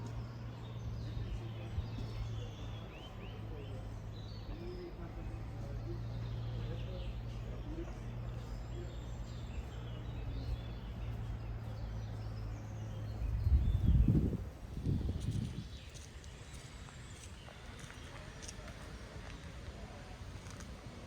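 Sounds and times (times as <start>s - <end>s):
birds chirping and whistling: 0.1s - 18.5s
low rumble: 10.0s - 15.9s.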